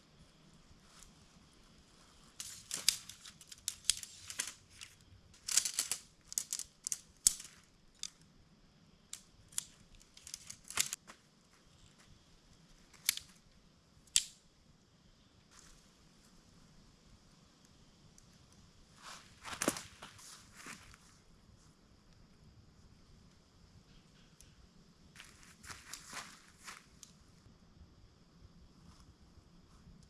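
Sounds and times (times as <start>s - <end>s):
tent poles clicking: 0.8s - 8.3s, 9.1s - 12.0s, 12.6s - 13.5s, 14.1s - 14.4s, 19.0s - 21.0s, 25.2s - 27.2s
tent nylon rustling: 19.0s - 21.1s.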